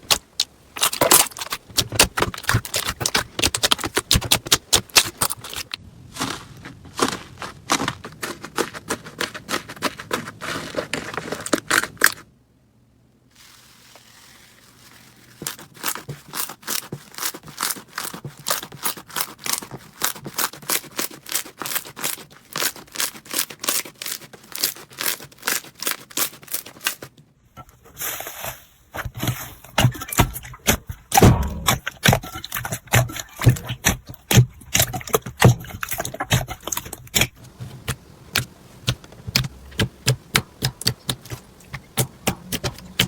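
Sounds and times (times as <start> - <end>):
slime crackling and popping: 0.1 - 5.8.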